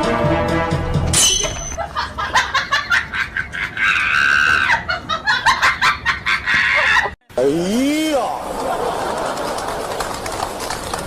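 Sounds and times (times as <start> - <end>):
person laughing hard: 1.8 - 7.2.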